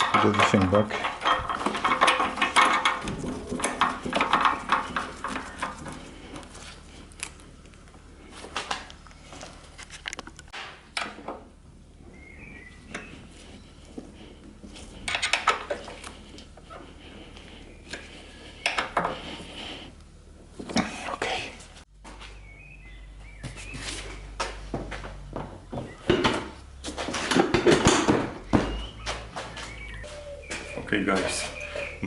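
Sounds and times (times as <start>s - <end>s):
metal tools clinking and knocking: 0.0s - 6.0s.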